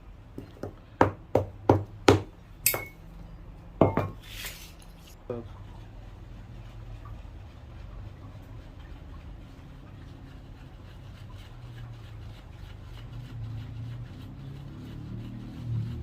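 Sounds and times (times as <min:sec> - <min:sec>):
scratchy rubbing strokes: 0:05.8 - 0:16.0
street traffic rumble: 0:12.6 - 0:16.0.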